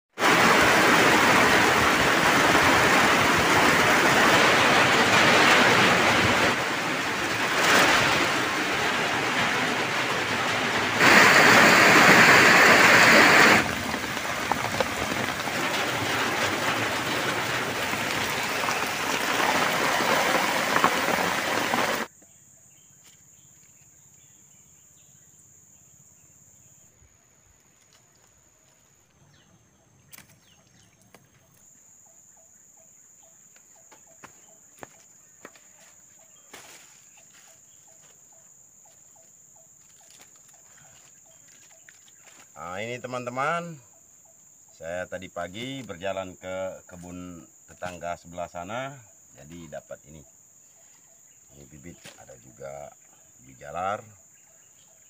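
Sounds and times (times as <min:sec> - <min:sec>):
heavy rain pouring: 0:00.1 - 0:22.1
water streaming off a roof: 0:00.2 - 0:22.1.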